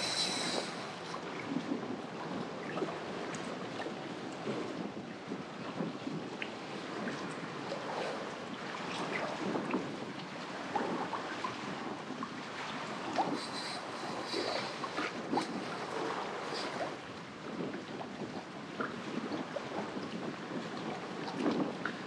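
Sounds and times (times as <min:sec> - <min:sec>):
water splashing and lapping: 0:00.0 - 0:22.0
wind buffeting microphone: 0:00.0 - 0:22.0.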